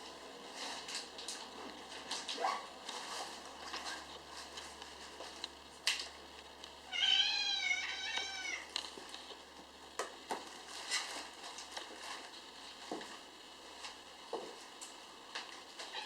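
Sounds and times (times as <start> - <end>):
kitten meowing: 6.9 - 8.7.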